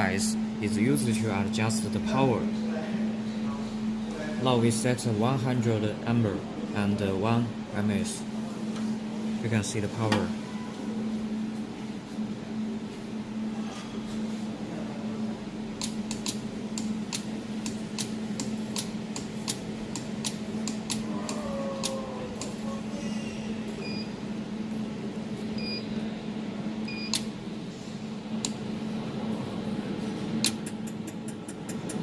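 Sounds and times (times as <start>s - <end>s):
machine hum: 0.0s - 32.0s
short beeps: 10.4s - 10.9s
laser welder clicks: 15.8s - 22.6s.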